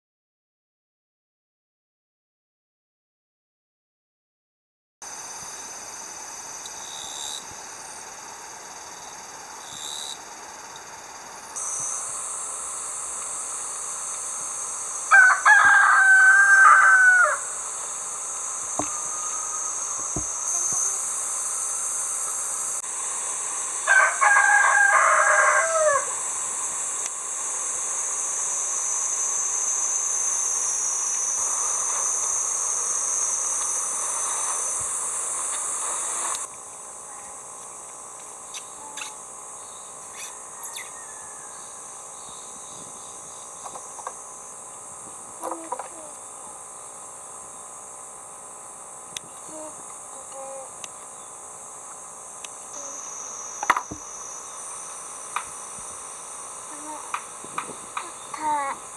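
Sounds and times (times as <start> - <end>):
insects droning: 5.0 - 58.9
rooster crowing: 15.1 - 17.6, 18.8 - 20.3, 23.8 - 26.2, 40.4 - 42.0.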